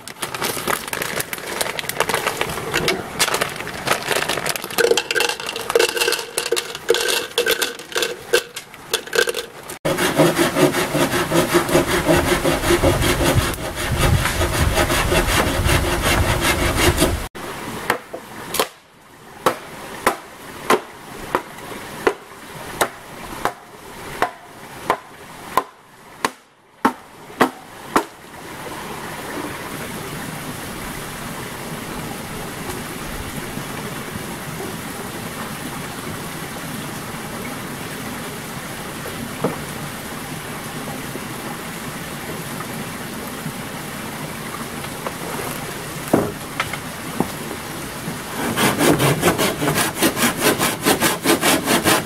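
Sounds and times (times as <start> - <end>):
rhythmic sawing strokes: 4.8 - 17.3, 48.4 - 52.0.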